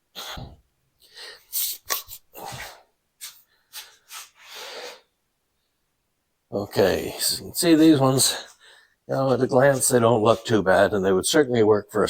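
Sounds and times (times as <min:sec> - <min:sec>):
rustling and rubbing: 0:01.8 - 0:04.6.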